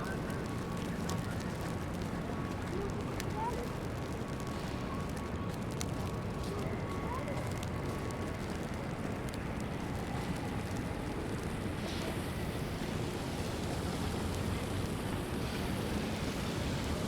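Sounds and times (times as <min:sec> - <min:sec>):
traffic rumble: 0:00.0 - 0:06.9
wind: 0:00.0 - 0:17.0.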